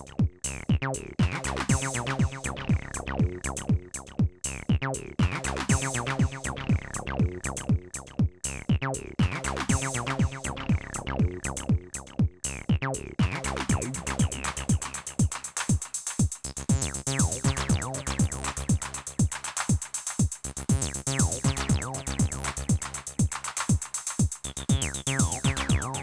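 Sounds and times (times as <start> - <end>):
low bass line: 0.0 - 15.3, 16.5 - 19.2, 20.5 - 23.2, 24.4 - 26.0
kick drum: 0.1 - 26.0
hi-hat ticks: 14.2 - 26.0.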